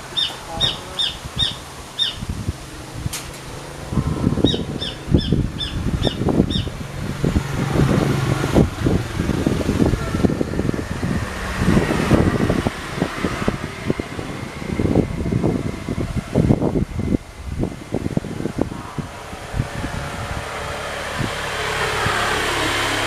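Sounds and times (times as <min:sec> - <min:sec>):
bird chirping: 0:00.1 - 0:02.3, 0:04.4 - 0:06.8.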